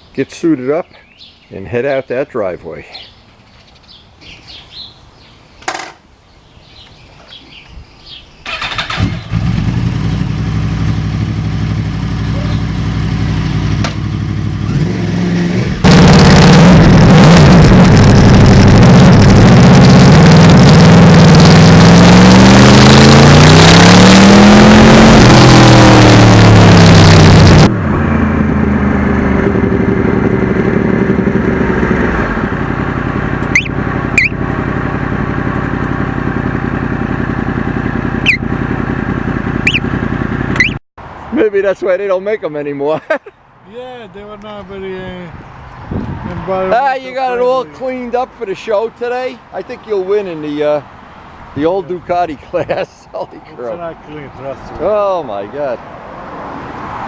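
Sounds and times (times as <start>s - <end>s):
motorcycle engine revving: 8.5s - 40.8s.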